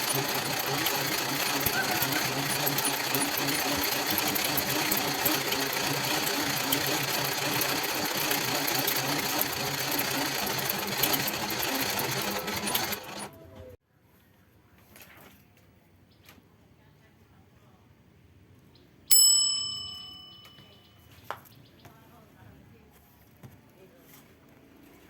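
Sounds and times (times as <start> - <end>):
small electric motor whirring: 0.0 - 13.4.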